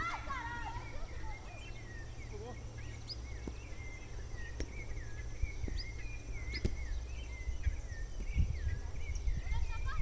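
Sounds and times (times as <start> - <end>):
birds chirping: 0.0 - 10.0
steady low rumble: 0.0 - 10.0.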